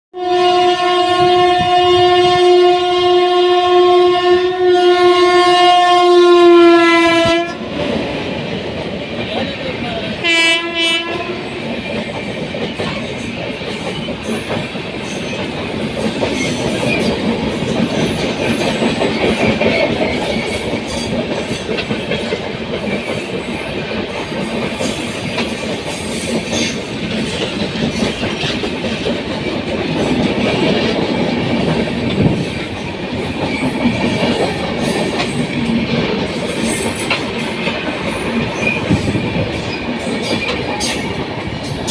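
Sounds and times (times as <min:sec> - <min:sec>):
train horn: 0:00.2 - 0:07.7, 0:10.2 - 0:11.6
train wheels clattering over rails: 0:11.2 - 0:41.9.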